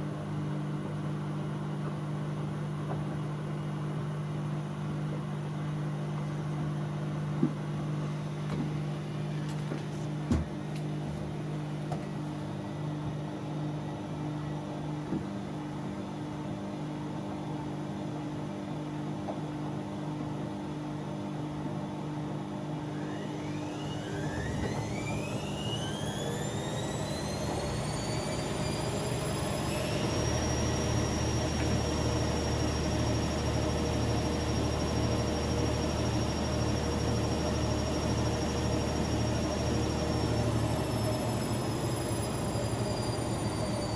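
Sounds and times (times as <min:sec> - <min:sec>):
washing machine hum: 0:00.0 - 0:17.0, 0:21.1 - 0:43.9
drum motor whine: 0:22.9 - 0:43.9.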